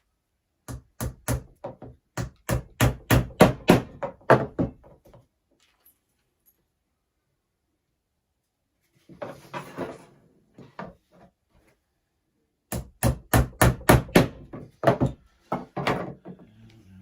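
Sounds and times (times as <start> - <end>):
hammer tapping on wooden frame: 0.6 - 4.8, 12.7 - 16.1.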